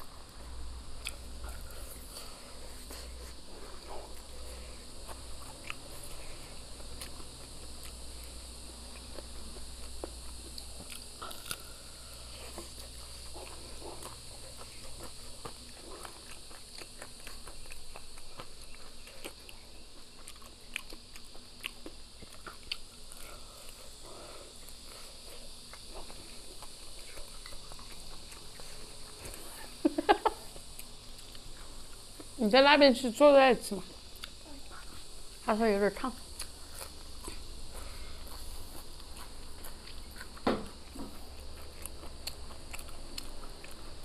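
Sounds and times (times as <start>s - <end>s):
person chewing crispy chicken: 0.0s - 32.4s, 34.0s - 35.4s, 36.3s - 44.0s.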